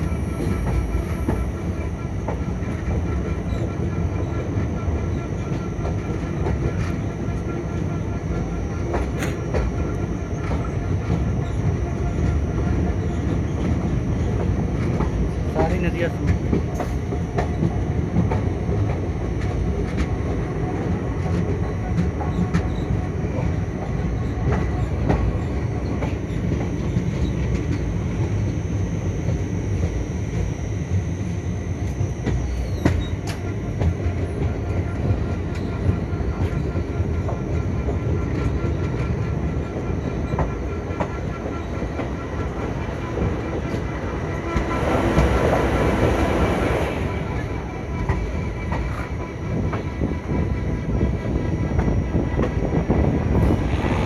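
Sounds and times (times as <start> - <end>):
train rumbling on track: 0.0 - 54.0.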